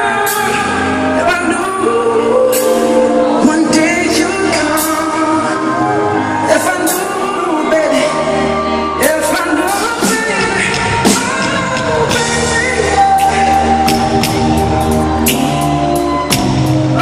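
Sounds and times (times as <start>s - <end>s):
live pop band performing: 0.0s - 17.0s.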